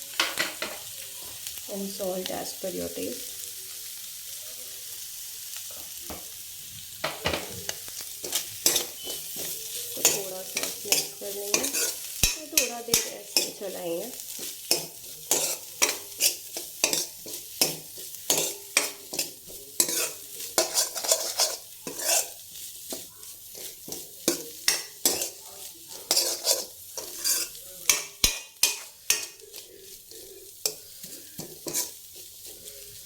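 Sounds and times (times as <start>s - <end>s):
food sizzling: 0.0s - 33.0s
spoon scraping a pan: 7.0s - 33.0s.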